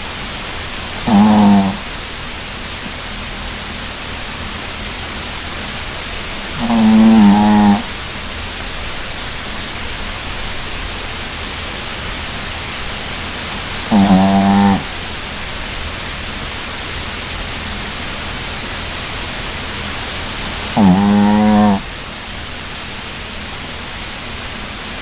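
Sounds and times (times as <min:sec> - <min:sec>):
steady hiss: 0:00.0 - 0:25.0
dog snoring: 0:00.7 - 0:01.9, 0:06.5 - 0:08.0, 0:13.2 - 0:15.2, 0:20.3 - 0:21.9.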